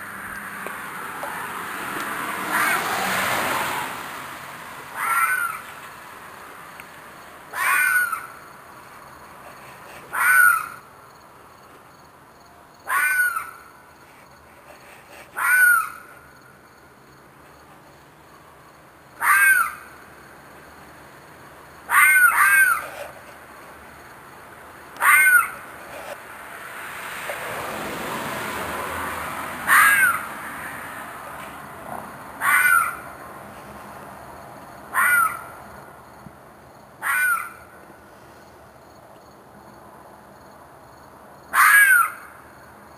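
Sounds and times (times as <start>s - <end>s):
animal screeching scream: 2.5s - 3.1s, 5.0s - 5.7s, 7.5s - 8.4s, 10.1s - 10.8s, 12.9s - 13.6s, 15.4s - 16.1s, 19.2s - 19.8s, 21.9s - 23.1s, 25.0s - 25.6s, 29.7s - 30.3s, 32.4s - 33.1s, 34.9s - 35.5s, 37.0s - 37.6s, 41.5s - 42.2s.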